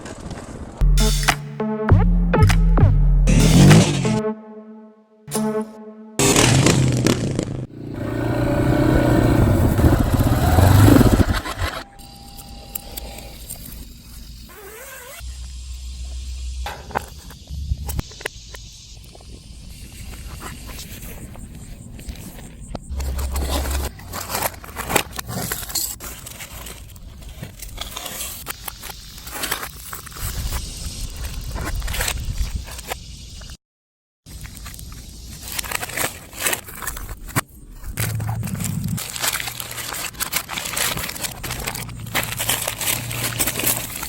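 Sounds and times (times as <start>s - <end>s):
motorcycle engine running: 6.2s - 11.8s
clicks scrapes and crinkling: 20.1s - 30.6s, 34.3s - 44.0s.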